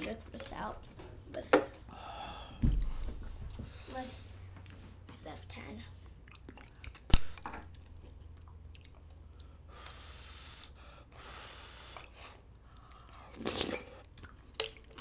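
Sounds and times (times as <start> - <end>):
person chewing food: 6.0 - 10.8, 11.8 - 15.0.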